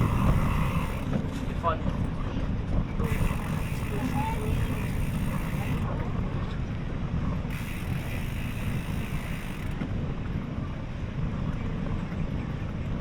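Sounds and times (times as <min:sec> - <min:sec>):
wind on microphone: 0:00.0 - 0:13.0
road traffic: 0:03.0 - 0:05.9.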